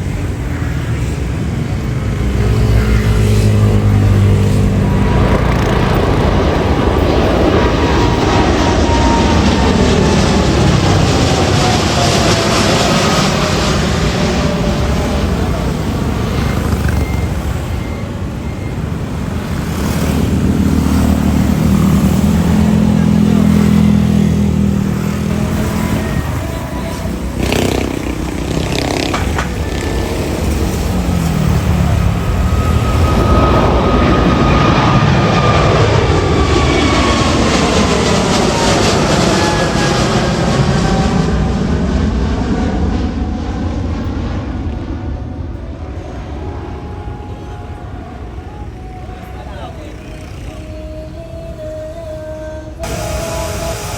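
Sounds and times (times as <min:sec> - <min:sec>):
jet engines droning: 0:00.0 - 0:53.9.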